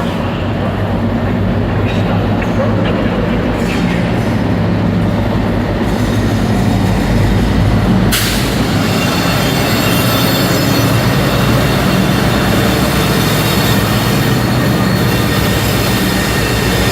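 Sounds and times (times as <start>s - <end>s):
train engine hum: 0.0s - 16.9s
high-pitched screeching hiss: 8.1s - 16.9s.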